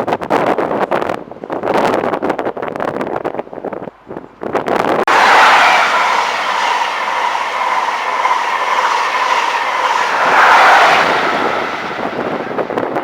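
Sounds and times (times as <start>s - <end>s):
steady whine: 5.1s - 13.0s
train wheels rushing on rail: 5.1s - 13.0s.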